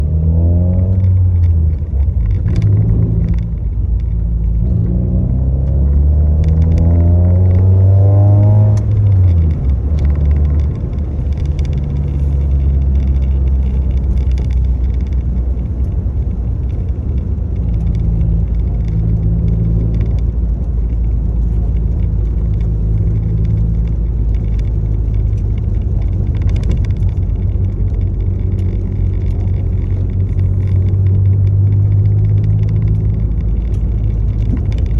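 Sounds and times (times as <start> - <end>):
vehicle engine low rumble: 0.0 - 34.9.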